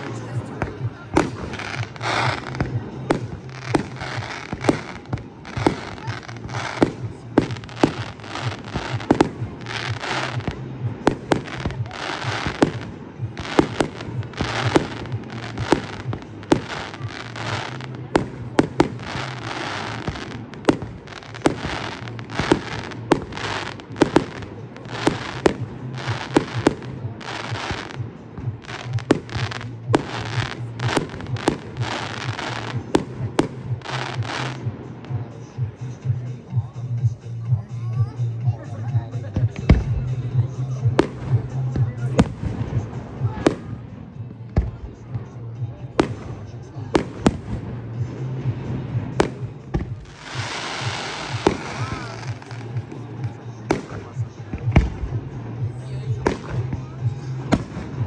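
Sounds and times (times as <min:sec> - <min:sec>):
crackling fireworks: 0:00.0 - 0:58.0.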